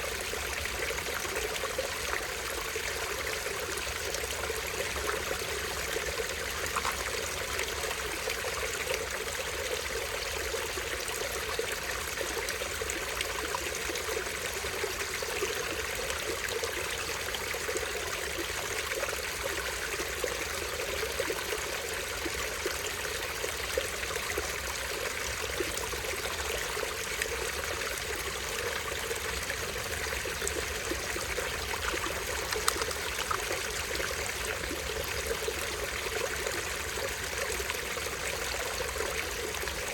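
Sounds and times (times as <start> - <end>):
stream running over rocks: 0.0 - 39.9
tiny waterfall splashing: 30.6 - 34.6.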